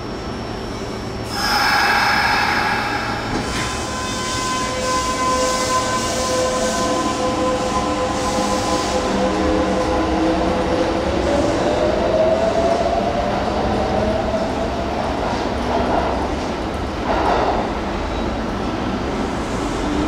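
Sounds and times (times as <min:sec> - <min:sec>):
electric train rumbling on rails: 0:00.0 - 0:20.0
high whine: 0:01.3 - 0:04.7.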